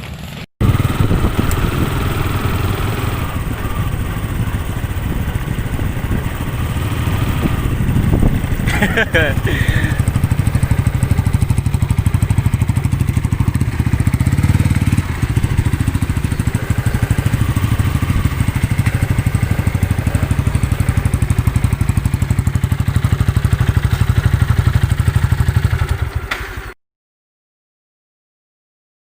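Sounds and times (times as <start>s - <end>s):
motorcycle engine idling: 0.1s - 26.8s.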